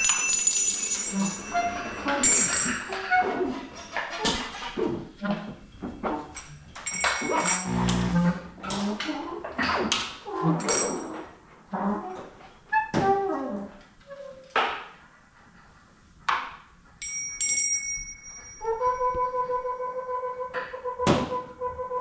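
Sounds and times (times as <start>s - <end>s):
metal chime ringing: 0.0s - 3.0s, 6.4s - 8.2s, 17.0s - 18.9s.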